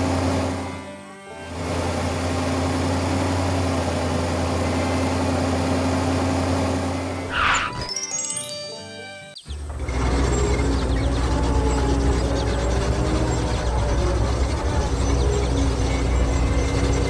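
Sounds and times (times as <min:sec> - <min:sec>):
heavy vehicle engine idling: 0:01.5 - 0:07.3, 0:09.6 - 0:17.0
short whoosh: 0:07.3 - 0:07.9.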